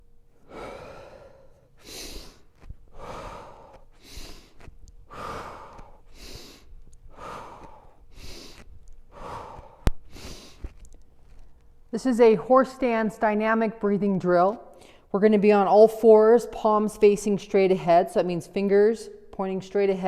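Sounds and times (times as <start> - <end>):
person breathing heavily: 0.3 - 11.7.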